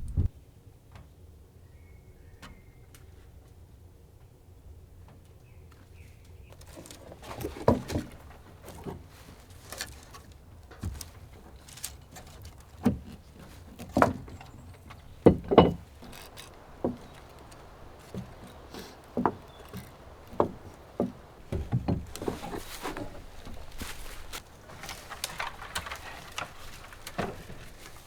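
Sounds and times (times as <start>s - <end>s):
irregular knocks and clunks: 6.6s - 28.0s.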